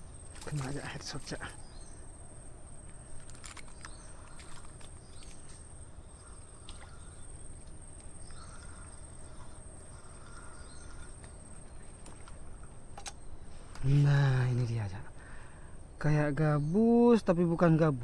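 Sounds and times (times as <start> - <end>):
high-pitched insect trill: 0.0 - 12.6
faint bird chirps: 0.0 - 18.0
small clicks: 2.8 - 5.6.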